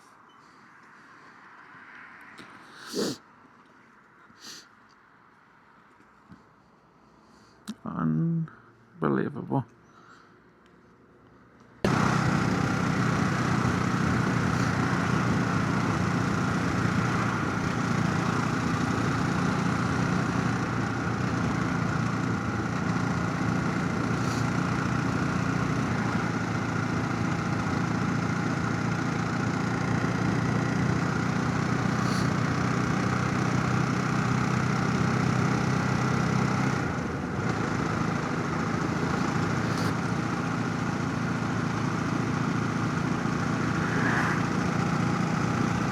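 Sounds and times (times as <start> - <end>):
motorcycle engine running: 11.9 - 45.9
rushing noise: 43.2 - 45.3.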